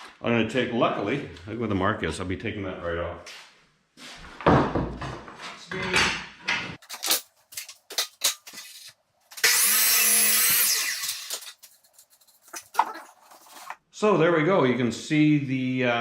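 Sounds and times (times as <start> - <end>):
power saw cutting plywood: 9.4 - 11.4.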